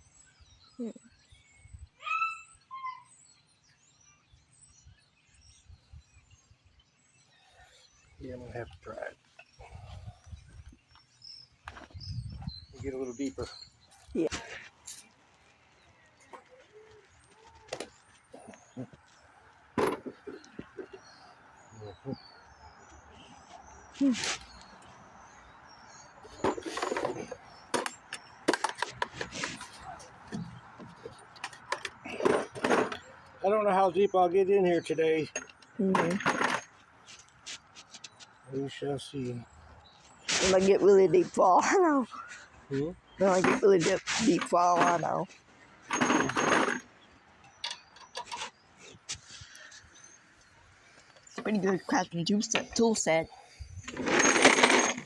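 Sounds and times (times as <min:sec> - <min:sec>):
small objects scraping: 0:26.2 - 0:30.2, 0:40.1 - 0:40.9, 0:43.2 - 0:46.9, 0:53.5 - 0:55.0
sharp clicks and clinks: 0:45.9 - 0:46.8.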